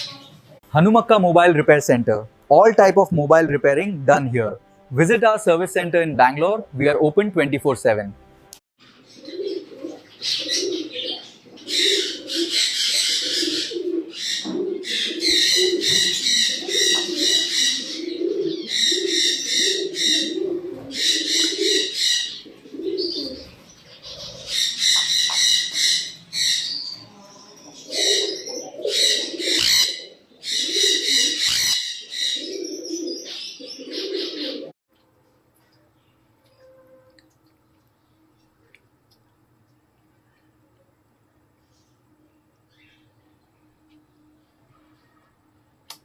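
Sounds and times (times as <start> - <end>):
loud high bird chirping: 8.8 - 34.6
dove-like cooing: 9.0 - 26.9, 27.7 - 34.8.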